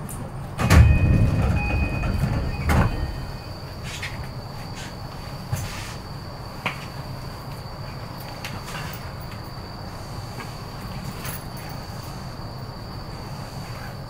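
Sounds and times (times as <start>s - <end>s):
train equipment hum: 0.0s - 14.0s.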